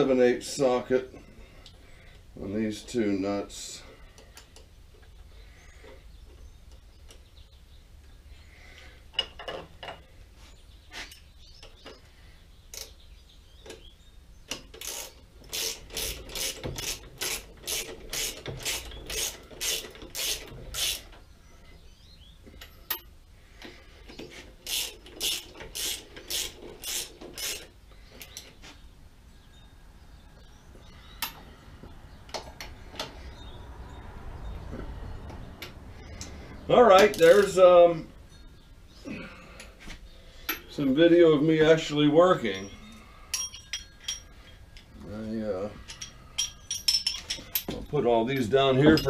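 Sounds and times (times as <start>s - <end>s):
ratchet wrench clicking: 14.7s - 21.1s, 24.6s - 27.7s.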